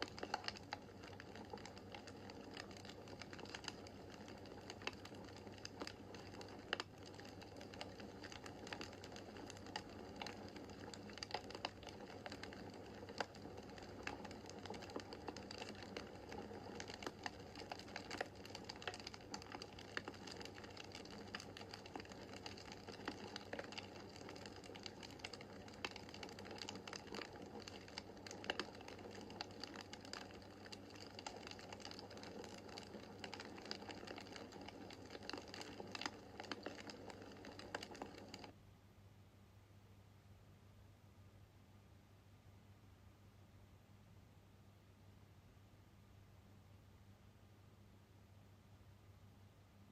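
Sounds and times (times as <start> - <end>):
wood fire crackling: 0.0 - 38.6
faint low hum: 0.0 - 49.9.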